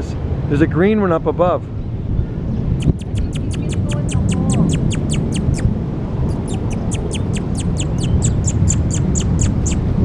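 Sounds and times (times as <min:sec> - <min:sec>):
bird chirping: 0:02.5 - 0:09.9.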